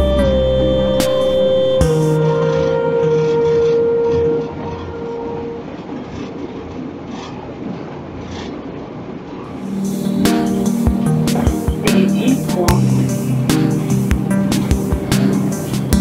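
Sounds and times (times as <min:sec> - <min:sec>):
steady tone: 0:00.0 - 0:06.4
train rumbling on track: 0:01.8 - 0:16.0.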